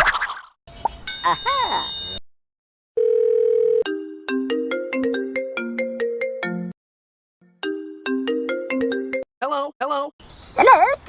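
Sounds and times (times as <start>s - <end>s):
phone ringtone melody: 3.0s - 6.7s, 7.6s - 9.2s.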